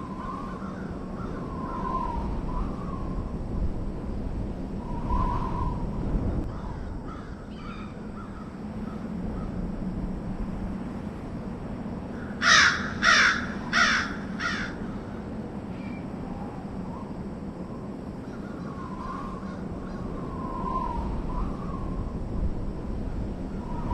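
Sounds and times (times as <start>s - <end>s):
low background hum: 0.0s - 23.9s
crow cawing: 6.5s - 9.5s, 12.2s - 15.2s.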